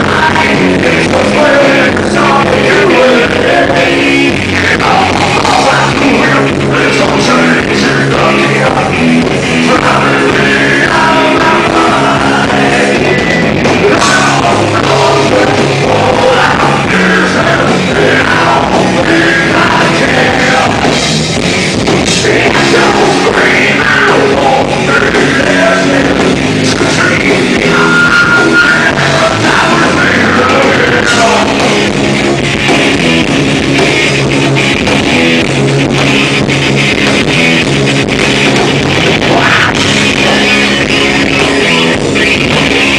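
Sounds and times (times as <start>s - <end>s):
person singing: 0.0s - 21.0s, 22.1s - 31.8s
rock band playing live: 0.0s - 42.9s.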